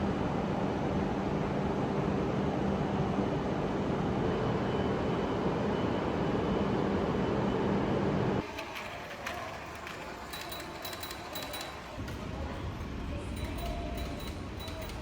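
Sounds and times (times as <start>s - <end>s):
train rumbling inside carriage: 8.4s - 15.0s.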